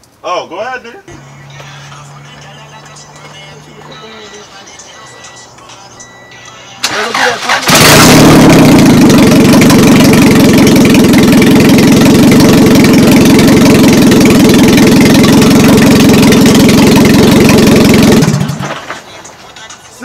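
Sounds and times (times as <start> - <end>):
car engine running loudly: 1.1 - 4.5, 6.8 - 18.9.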